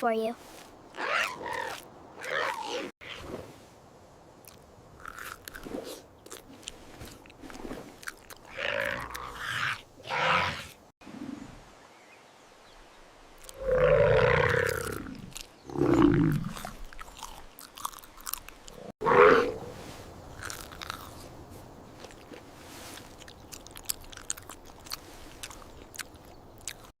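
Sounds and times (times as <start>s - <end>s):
chewing and crunching food: 4.4s - 10.7s, 14.4s - 18.9s, 20.3s - 27.0s.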